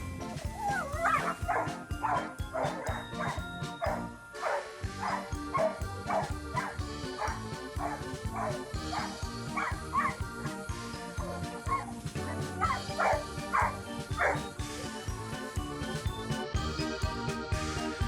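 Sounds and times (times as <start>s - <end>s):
background music with steady beat: 0.0s - 18.0s
dog barking: 1.0s - 10.6s, 11.7s - 14.5s.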